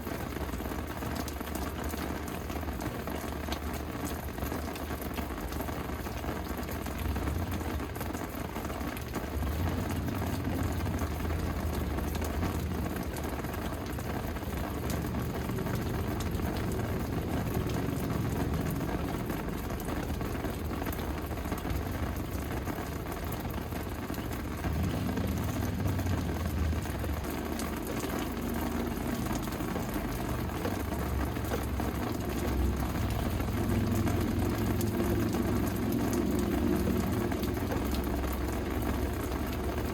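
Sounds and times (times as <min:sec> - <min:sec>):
steady rain falling: 0:00.0 - 0:39.9
low rumble: 0:09.2 - 0:39.9.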